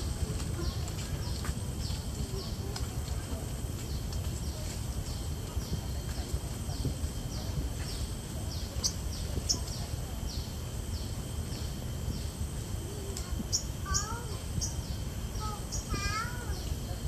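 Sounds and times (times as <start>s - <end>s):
low background rumble: 0.0s - 17.0s
high falling bird calls: 13.5s - 16.7s
low bird warbling: 13.5s - 16.7s.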